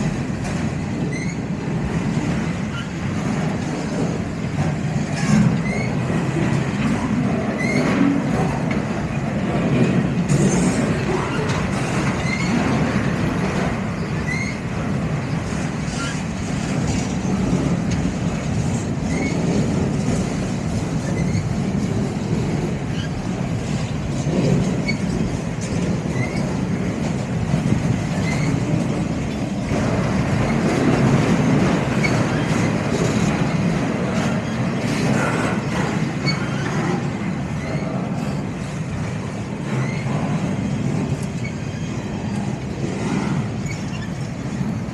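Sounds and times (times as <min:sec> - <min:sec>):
freight train wheels rumbling: 0:00.0 - 0:44.9
wheels squeaking: 0:05.1 - 0:06.0, 0:14.0 - 0:14.6.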